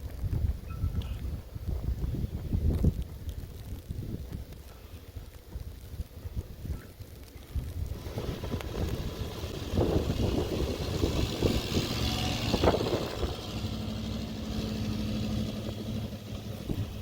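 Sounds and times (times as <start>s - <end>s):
vehicle engine humming: 7.2s - 17.0s.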